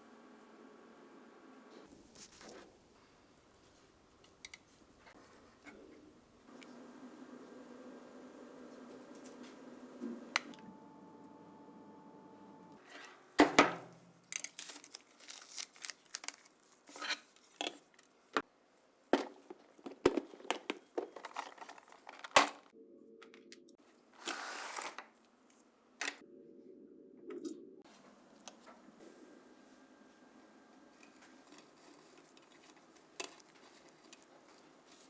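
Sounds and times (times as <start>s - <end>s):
crinkling rustles: 14.2s - 18.2s, 19.2s - 22.7s, 31.0s - 35.0s.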